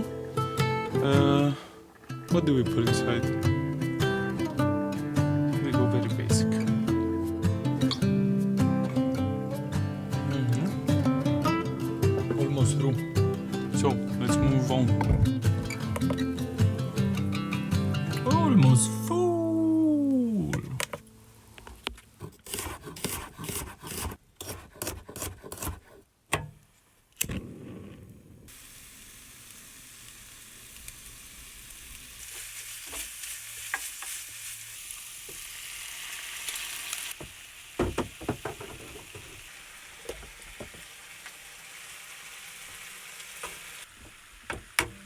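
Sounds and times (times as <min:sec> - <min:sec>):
food sizzling in a pan: 0:28.5 - 0:45.0.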